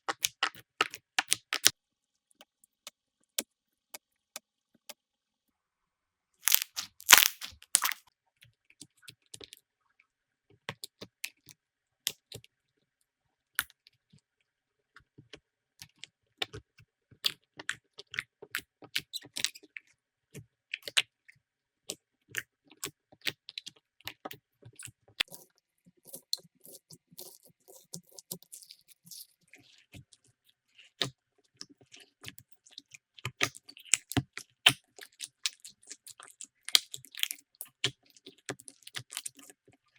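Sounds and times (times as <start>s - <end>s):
slime sticky clicks and crackles: 6.5s - 8.0s.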